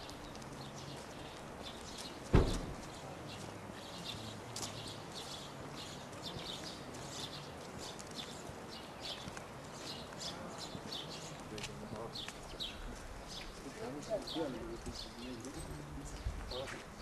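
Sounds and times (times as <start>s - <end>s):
outdoor background noise: 0.0s - 17.0s
small birds chirping: 0.0s - 17.0s
sharp thump: 2.3s - 2.8s.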